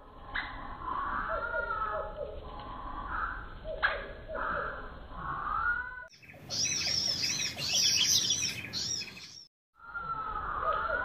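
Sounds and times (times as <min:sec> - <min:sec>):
small birds chirping: 0:06.1 - 0:09.5.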